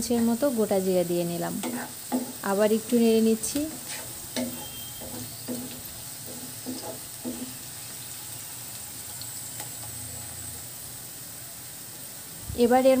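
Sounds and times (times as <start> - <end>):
onions and spices sizzling in oil: 0.0 - 13.0
wooden spatula scraping a pan: 1.6 - 2.5, 3.4 - 8.0.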